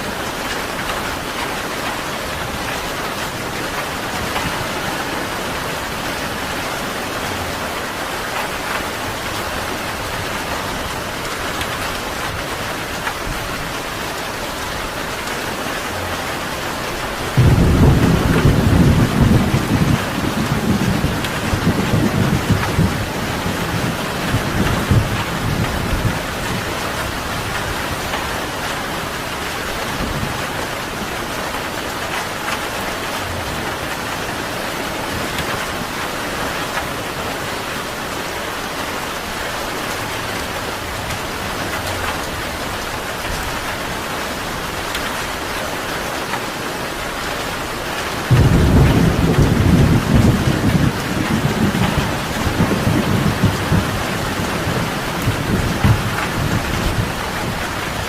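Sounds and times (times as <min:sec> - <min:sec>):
steady rain falling: 0:00.0 - 0:58.0
loud low thunder rumble: 0:17.3 - 0:26.6, 0:48.3 - 0:58.0.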